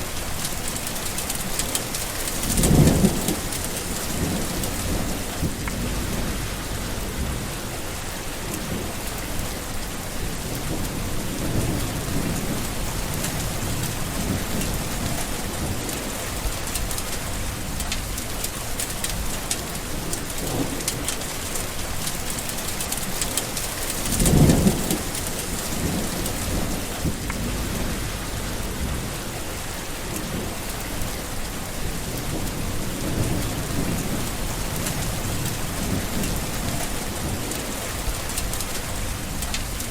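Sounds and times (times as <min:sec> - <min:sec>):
steady rain: 0:00.0 - 0:39.9
rolling thunder: 0:02.2 - 0:09.6, 0:10.2 - 0:16.8, 0:23.9 - 0:39.9.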